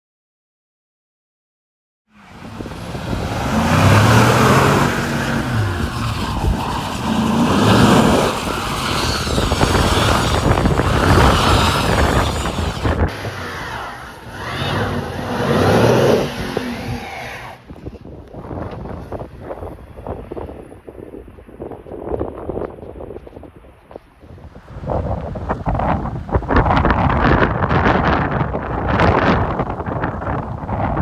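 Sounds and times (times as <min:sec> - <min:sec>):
cars driving by: 0:02.2 - 0:19.3.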